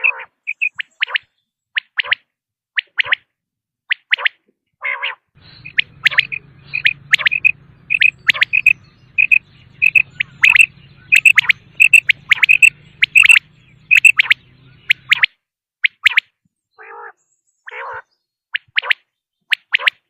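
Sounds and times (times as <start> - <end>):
quail calling: 0.0 - 2.2, 4.2 - 15.3, 16.8 - 19.0
faint low hum: 5.4 - 15.1.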